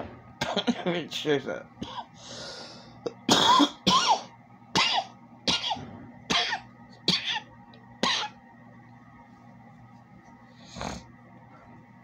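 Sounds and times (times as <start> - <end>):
person coughing harshly: 3.1 - 8.4.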